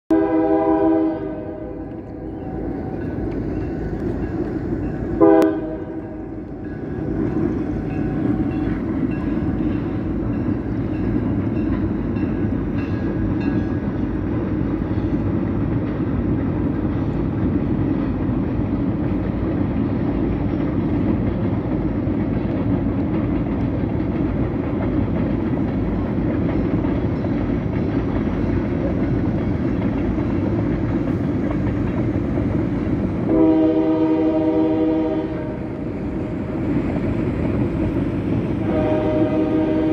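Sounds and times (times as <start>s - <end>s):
train horn blasts: 0.1s - 3.3s, 5.2s - 10.1s, 33.2s - 35.9s, 38.6s - 39.9s
distant train rumbling: 0.1s - 39.9s.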